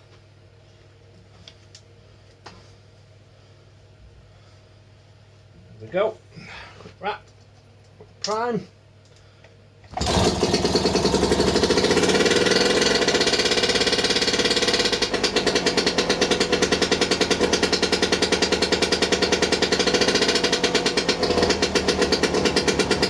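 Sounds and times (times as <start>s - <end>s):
outboard two-stroke engine running: 9.9s - 23.0s.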